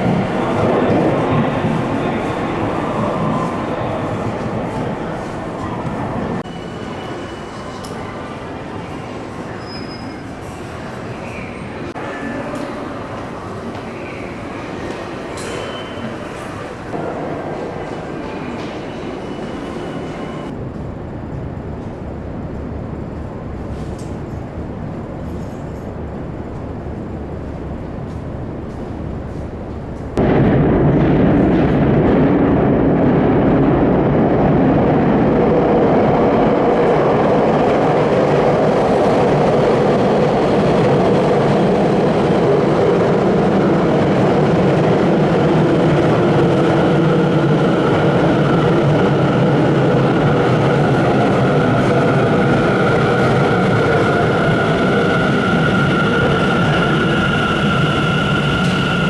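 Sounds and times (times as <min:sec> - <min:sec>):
train rumble and rail noise: 0:00.0 - 0:59.0
train running close past: 0:00.0 - 0:59.0.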